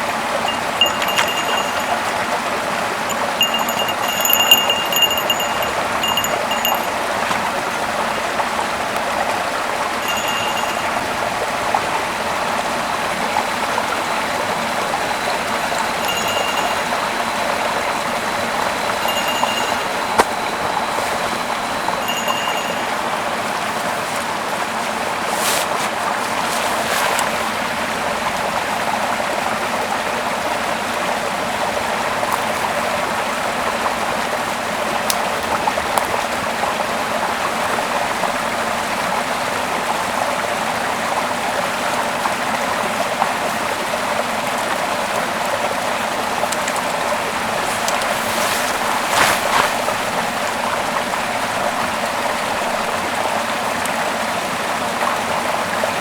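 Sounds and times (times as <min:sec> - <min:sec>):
river flowing over rocks: 0:00.0 - 0:38.7.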